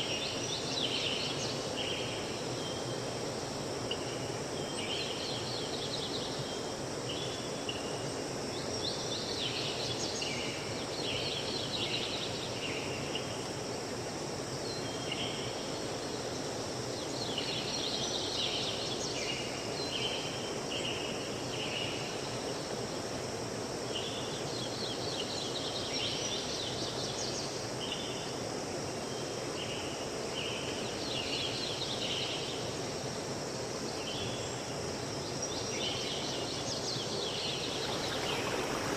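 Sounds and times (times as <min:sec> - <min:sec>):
songbird chirping: 0:35.4 - 0:38.9
river water rushing: 0:37.5 - 0:38.9.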